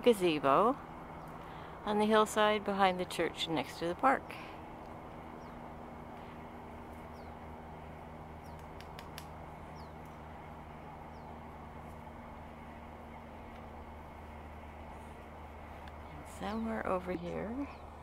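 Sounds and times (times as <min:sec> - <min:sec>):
low mechanical hum: 0:00.0 - 0:18.0
small bird chirping: 0:05.4 - 0:05.6, 0:07.0 - 0:07.4, 0:08.4 - 0:08.8, 0:09.7 - 0:10.3.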